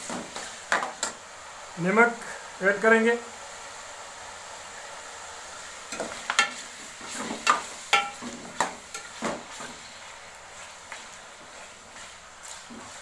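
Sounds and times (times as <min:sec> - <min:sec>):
chicken sizzling in oil: 0:00.0 - 0:13.0
metal spoon scraping pan: 0:06.0 - 0:09.8.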